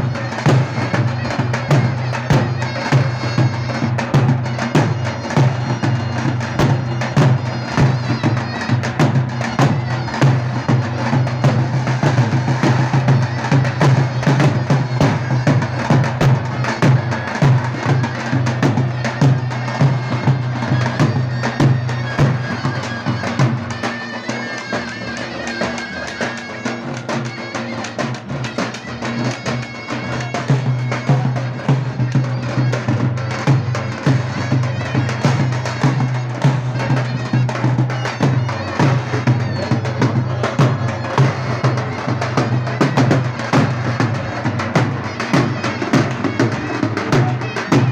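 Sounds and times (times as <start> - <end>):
big drum beats: 0.0 - 24.0, 26.5 - 47.9
shrill double-reed melody: 0.1 - 47.9.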